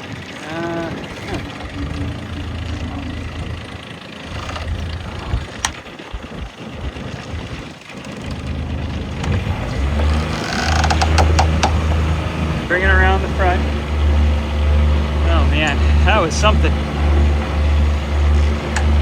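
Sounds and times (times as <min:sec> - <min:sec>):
boat engine idling: 0:00.0 - 0:19.0
scattered knocks: 0:08.0 - 0:12.7.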